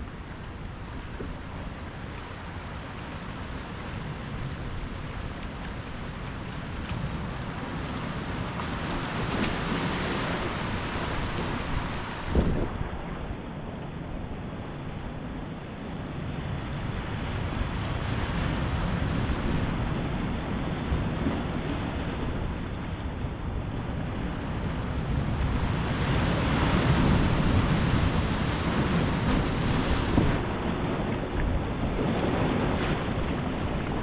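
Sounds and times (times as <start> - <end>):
ocean surf breaking: 0.0 - 13.7, 23.8 - 34.0.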